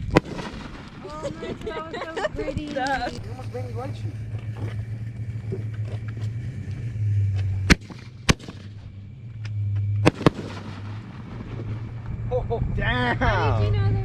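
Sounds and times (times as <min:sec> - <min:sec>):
fireworks bangs: 0:00.0 - 0:06.1, 0:07.4 - 0:09.0, 0:10.0 - 0:12.2.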